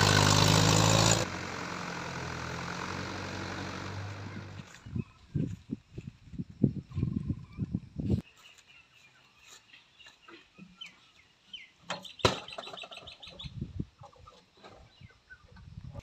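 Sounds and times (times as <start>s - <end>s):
birds calling: 6.9s - 15.6s.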